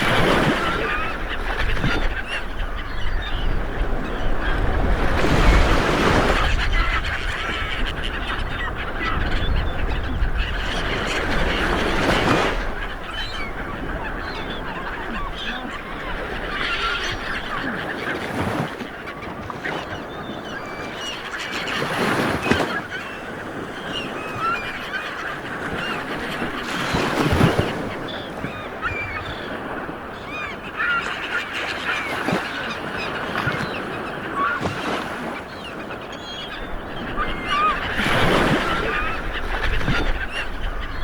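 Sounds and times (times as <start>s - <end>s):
birds calling: 0.0s - 41.0s
sea waves washing onto shore: 0.0s - 41.0s.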